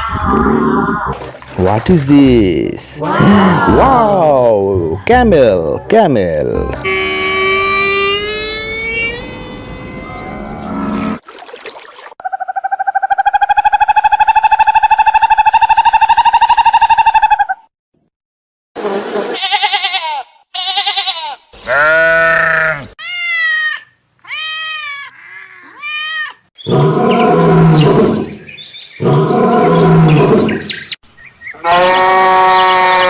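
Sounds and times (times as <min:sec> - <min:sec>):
animal bleating: 0:06.7 - 0:11.2, 0:19.4 - 0:26.4, 0:31.6 - 0:33.0.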